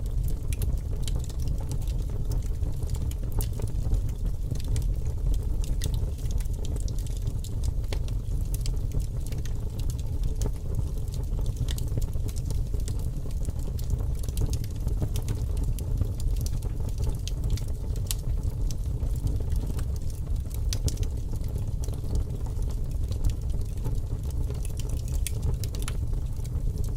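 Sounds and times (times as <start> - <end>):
fire crackling: 0.0 - 26.9.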